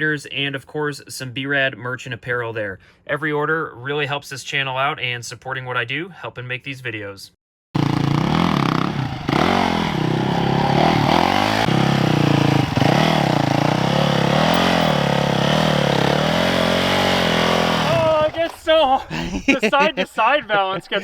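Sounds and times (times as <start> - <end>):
dirt bike engine revving: 7.8 - 18.5.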